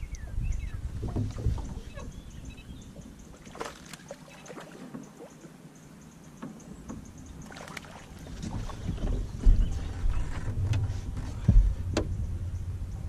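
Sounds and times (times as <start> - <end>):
wind rumble on microphone: 0.0 - 3.4, 8.1 - 13.0
light knocks and clicks: 8.4 - 12.2.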